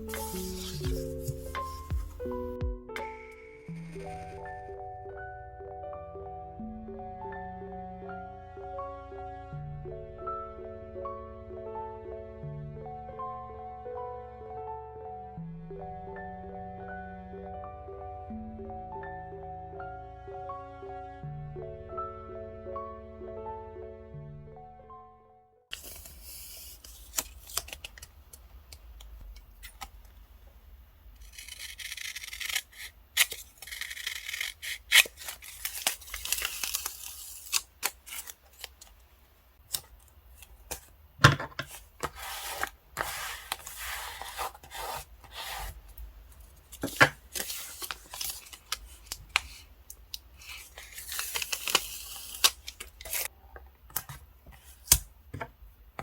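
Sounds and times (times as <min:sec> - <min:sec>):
paper tearing and peeling: 0:00.1 - 0:01.8, 0:31.2 - 0:38.8, 0:41.7 - 0:45.8, 0:46.7 - 0:49.6, 0:50.4 - 0:53.3.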